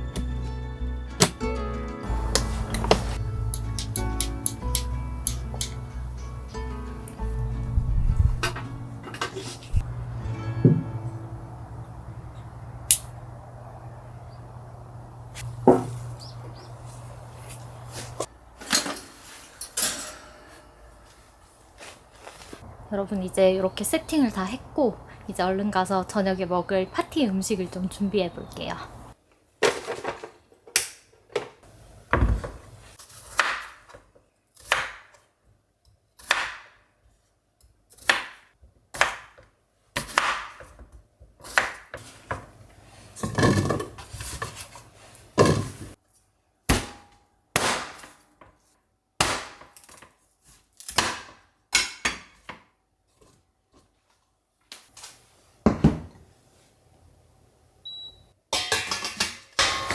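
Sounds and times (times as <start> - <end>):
dishes and utensils clattering: 8.4 - 9.8, 18.6 - 20.8, 58.6 - 59.9.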